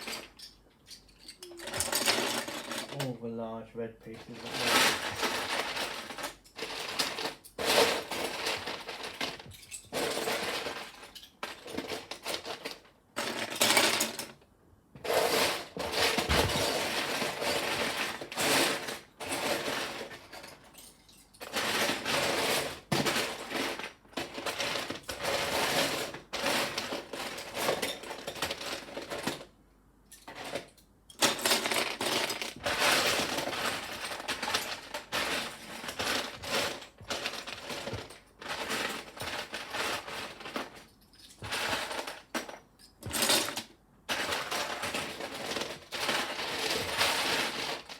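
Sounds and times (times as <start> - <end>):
plastic pieces clattering: 0.0 - 3.1, 4.1 - 14.4, 15.0 - 47.9.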